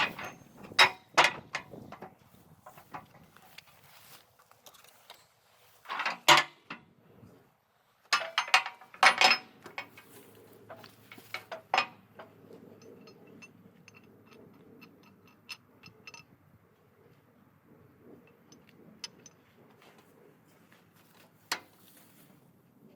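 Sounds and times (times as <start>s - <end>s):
metal clanking and rattling: 0.0s - 3.7s, 4.7s - 6.8s, 8.1s - 16.4s.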